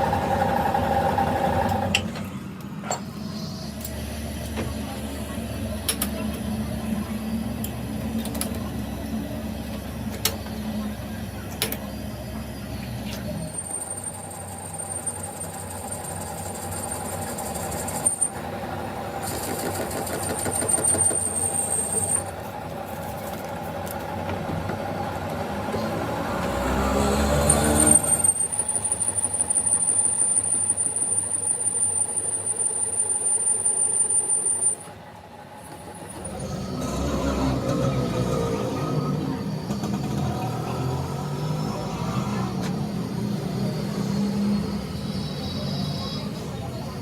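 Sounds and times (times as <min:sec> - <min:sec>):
machinery low rumble: 0:35.0 - 0:47.0.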